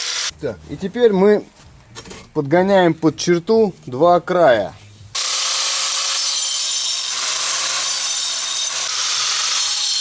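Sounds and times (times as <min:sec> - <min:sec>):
angle grinder grinding brick: 0:00.0 - 0:00.3, 0:05.2 - 0:10.0.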